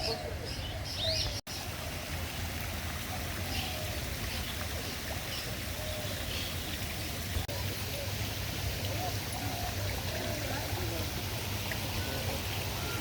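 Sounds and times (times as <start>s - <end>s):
birds chirping: 0.0s - 1.7s, 8.9s - 13.0s.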